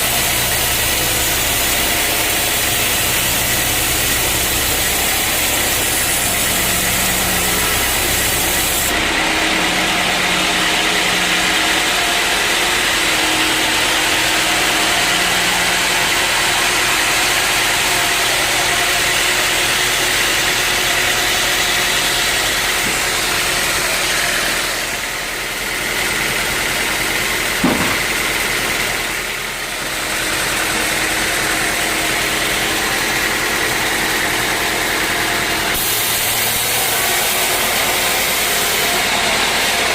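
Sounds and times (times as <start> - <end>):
sawmill machinery sawing logs: 0.0 - 39.9
sharp knock: 27.6 - 28.1.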